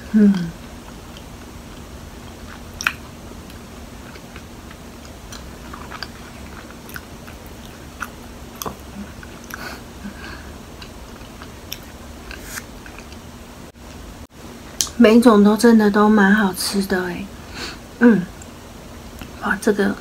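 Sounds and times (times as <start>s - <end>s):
chewing and mouth clicks: 1.1s - 9.7s, 10.8s - 13.2s.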